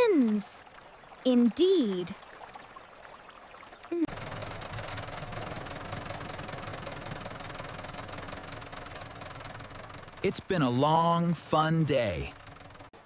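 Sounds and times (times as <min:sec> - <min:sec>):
engine running: 0:04.0 - 0:13.0.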